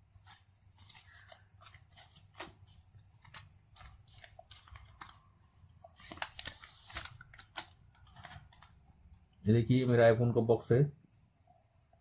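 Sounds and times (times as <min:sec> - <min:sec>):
packaging crinkling and snipping: 0:00.2 - 0:08.8.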